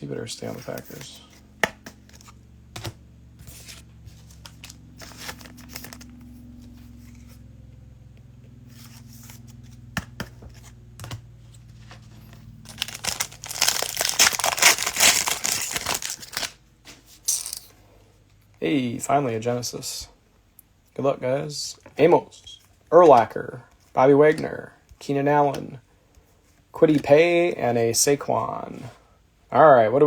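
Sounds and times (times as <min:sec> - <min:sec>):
cellophane wrapper tearing and crinkling: 0:12.7 - 0:16.6.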